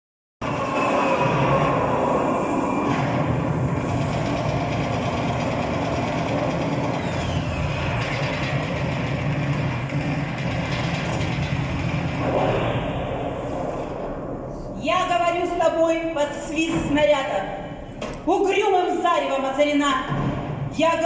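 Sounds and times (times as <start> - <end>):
heavy mechanical rumble: 0.4 - 14.9.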